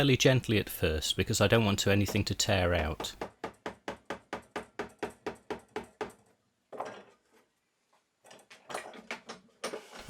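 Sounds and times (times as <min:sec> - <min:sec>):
chisel tapping into wood: 0:01.9 - 0:06.2.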